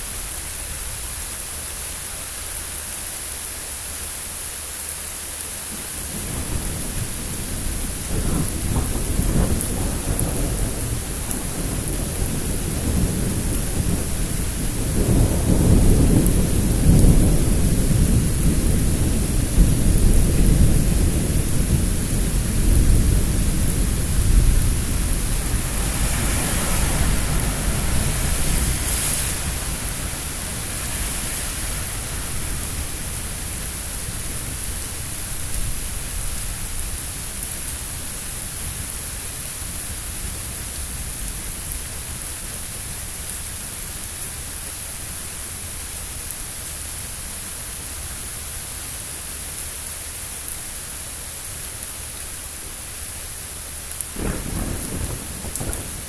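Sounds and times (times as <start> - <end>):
steady rain hissing: 0.0 - 56.0
thunder rumbling: 5.7 - 38.0, 54.1 - 56.0.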